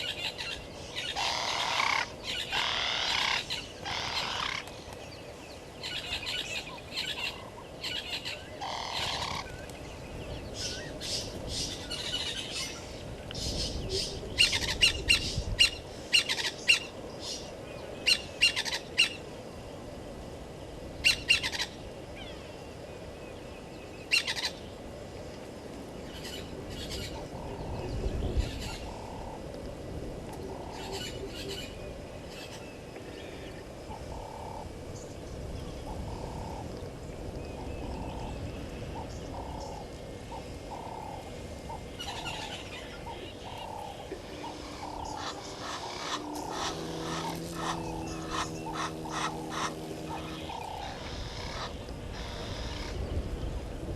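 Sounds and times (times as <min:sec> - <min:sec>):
harsh bird calls: 0:00.0 - 0:19.2, 0:37.5 - 0:53.6
soft low bird notes: 0:30.2 - 0:52.0.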